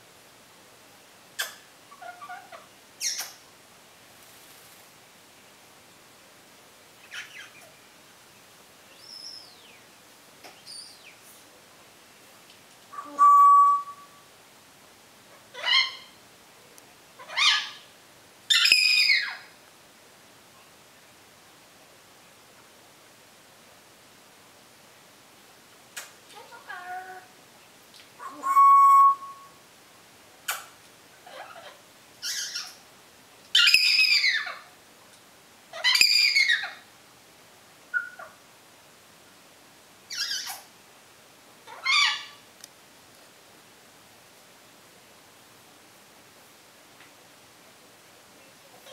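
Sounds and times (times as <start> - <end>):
parrot calling: 1.4 - 3.4, 7.0 - 7.8, 12.9 - 14.2, 15.3 - 16.2, 17.2 - 17.9, 18.5 - 19.5, 28.2 - 29.6, 31.2 - 32.8, 33.6 - 34.7, 35.7 - 36.8, 37.9 - 38.4, 40.1 - 40.7, 41.6 - 42.4
parrot whistling: 13.0 - 14.2, 28.2 - 29.6.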